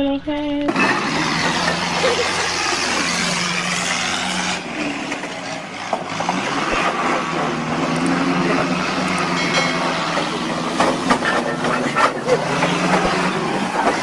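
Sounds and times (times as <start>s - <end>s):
vehicle engine humming: 0.0s - 14.0s
broad rushing noise: 0.6s - 14.0s.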